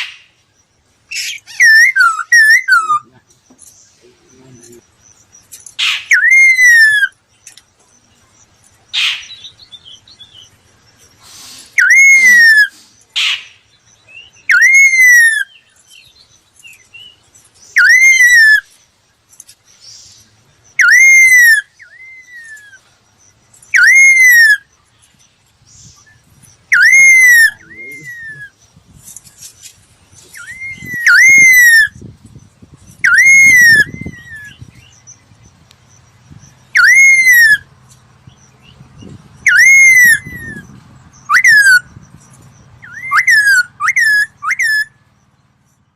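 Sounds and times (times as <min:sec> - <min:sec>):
bird whistled call: 0:01.1 - 0:03.1, 0:05.8 - 0:07.2, 0:11.2 - 0:13.5, 0:14.2 - 0:15.6, 0:17.8 - 0:18.7, 0:20.8 - 0:22.8, 0:23.7 - 0:24.7, 0:25.8 - 0:28.6, 0:30.3 - 0:32.0, 0:33.0 - 0:34.6, 0:36.7 - 0:37.7, 0:39.4 - 0:41.9, 0:42.8 - 0:45.0.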